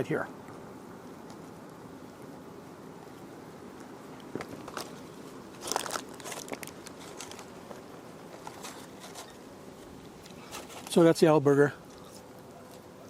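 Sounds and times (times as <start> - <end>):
wrapper crackling: 5.6 - 9.3.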